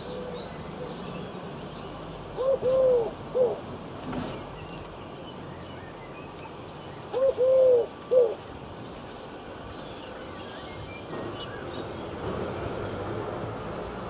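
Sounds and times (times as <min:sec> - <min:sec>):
bird hooting coos: 0:02.4 - 0:03.7, 0:07.1 - 0:08.4.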